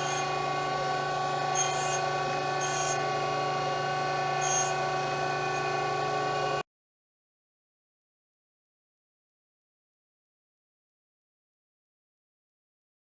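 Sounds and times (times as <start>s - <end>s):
surface grinder humming and whining: 0.0s - 6.6s.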